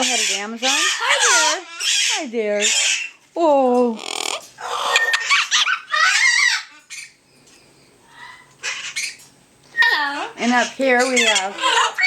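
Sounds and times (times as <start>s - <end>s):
parrot squawking: 0.0s - 3.2s, 4.0s - 7.2s, 8.0s - 12.0s.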